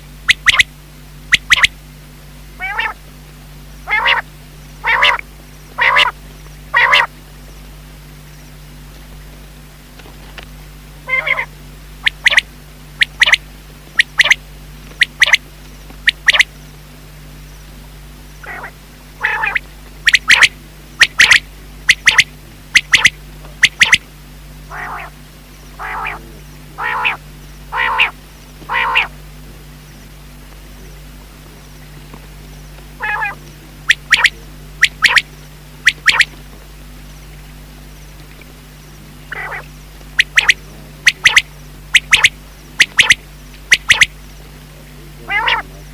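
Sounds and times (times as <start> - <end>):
quail calling: 0.3 - 0.7, 1.3 - 1.8, 2.6 - 3.0, 3.8 - 7.2, 11.0 - 16.5, 18.4 - 29.2, 33.0 - 36.4, 39.2 - 44.2, 45.2 - 45.9.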